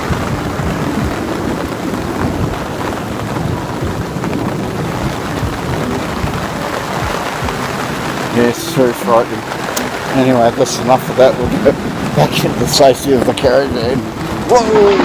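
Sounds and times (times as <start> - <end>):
low rumble of thunder: 0.0 - 8.2
heavy rain pouring: 0.0 - 15.0.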